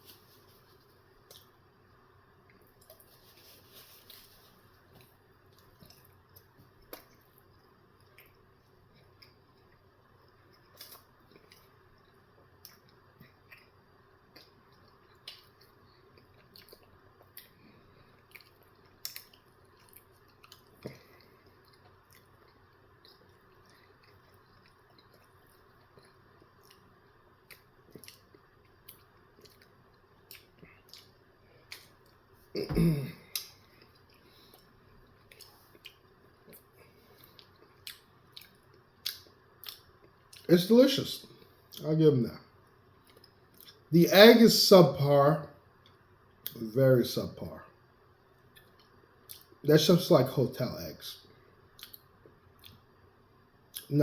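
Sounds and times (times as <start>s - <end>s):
person chewing: 0.0s - 1.6s, 2.5s - 40.5s, 48.4s - 49.6s, 51.7s - 53.0s
low steady hiss: 0.0s - 54.0s.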